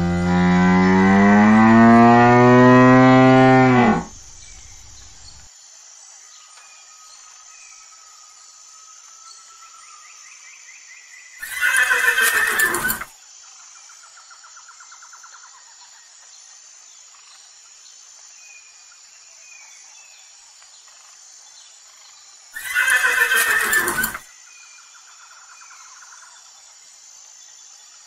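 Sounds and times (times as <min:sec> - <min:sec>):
horse whinnying: 0:02.8 - 0:05.3, 0:11.4 - 0:13.1, 0:22.6 - 0:24.2.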